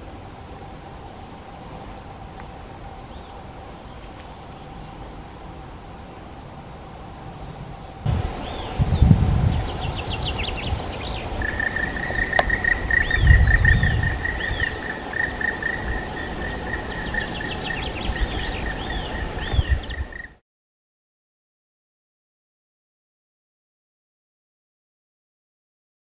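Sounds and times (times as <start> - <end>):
birds calling and singing: 7.7 - 20.4.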